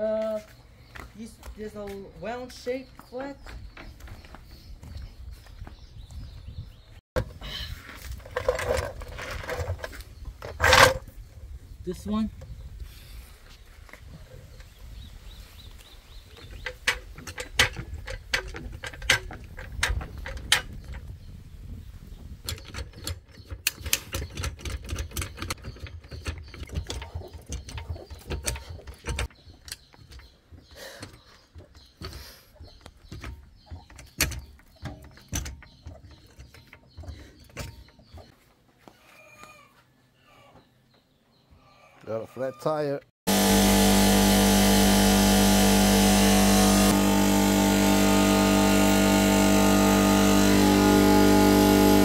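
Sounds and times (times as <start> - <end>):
hand tools clicking and clanking: 8.0 - 11.1, 16.3 - 21.1, 22.4 - 38.3.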